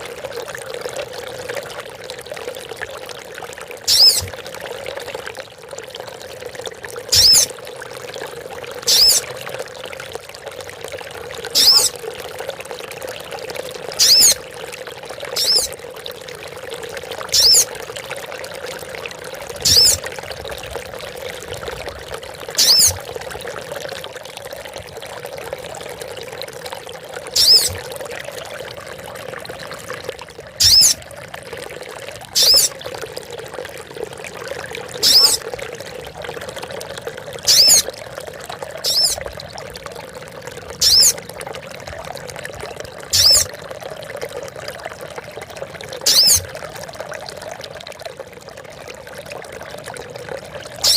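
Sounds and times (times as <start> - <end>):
trickle of running water: 0.0 - 50.9
bird calling: 3.9 - 4.3, 7.2 - 7.5, 8.9 - 9.2, 11.6 - 11.9, 14.0 - 14.4, 15.4 - 15.7, 17.4 - 17.7, 19.7 - 20.0, 22.6 - 23.0, 27.4 - 27.7, 30.6 - 31.0, 32.4 - 32.7, 35.0 - 35.4, 37.5 - 37.9, 38.8 - 39.2, 40.8 - 41.2, 43.2 - 43.5, 46.1 - 46.4.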